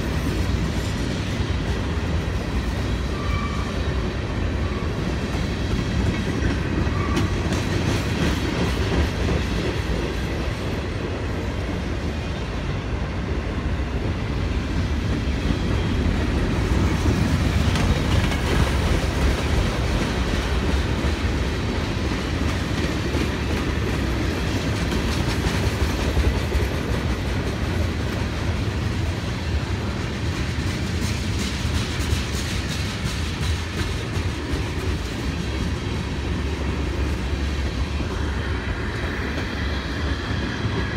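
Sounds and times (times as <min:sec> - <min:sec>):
freight train cars rolling: 0:00.0 - 0:40.9
wheels clicking over rail joints: 0:15.0 - 0:38.4.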